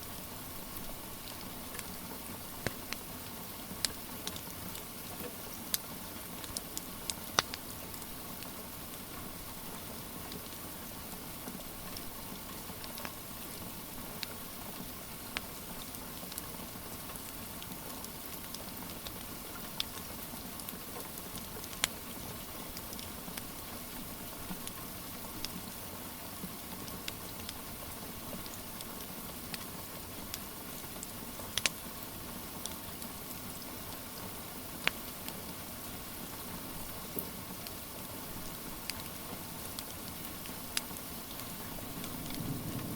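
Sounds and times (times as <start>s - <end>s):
wood fire crackling and popping: 2.6s - 3.1s, 3.8s - 8.5s, 17.2s - 22.0s, 26.9s - 31.8s, 34.8s - 35.4s, 38.4s - 42.9s
rain hissing: 23.5s - 42.9s.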